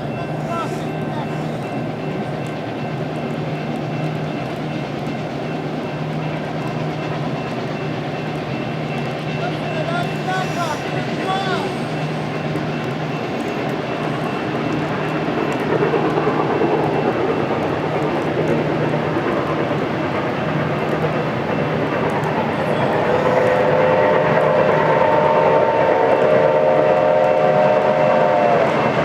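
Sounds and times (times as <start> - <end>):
locomotive rumbling: 0.0 - 29.0
locomotive horn chord: 22.8 - 29.0.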